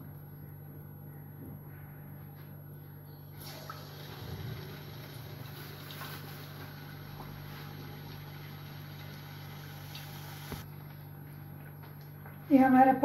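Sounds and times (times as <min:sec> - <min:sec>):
low steady hum: 0:00.0 - 0:13.0
batter sizzling in hot oil: 0:03.4 - 0:10.6.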